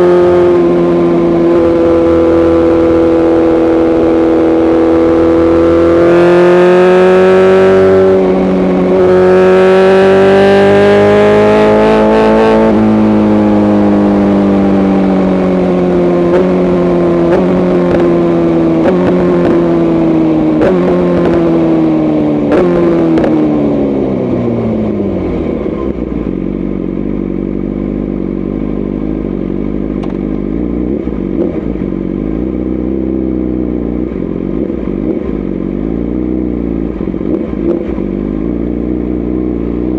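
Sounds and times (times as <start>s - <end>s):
sport bike engine revving: 0.0s - 25.2s.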